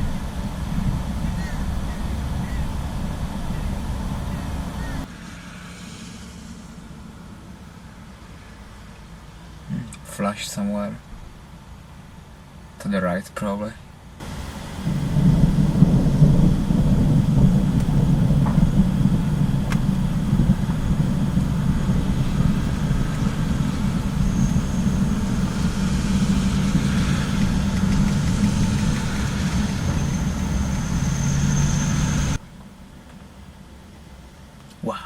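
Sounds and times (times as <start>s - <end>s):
rolling thunder rumble: 0.0s - 5.1s, 14.2s - 32.4s.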